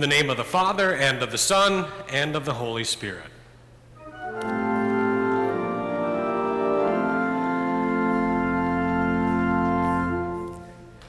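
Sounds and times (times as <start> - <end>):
organ playing sustained chords: 4.0 - 11.0
deep bass organ note: 4.1 - 10.6.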